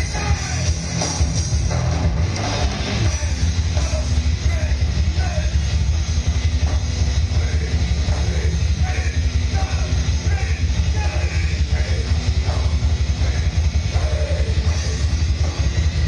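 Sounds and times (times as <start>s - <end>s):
shouted vocals: 0.0s - 0.8s, 7.4s - 12.6s
distorted electric guitars: 0.0s - 16.0s
fast drum beat: 0.0s - 16.0s.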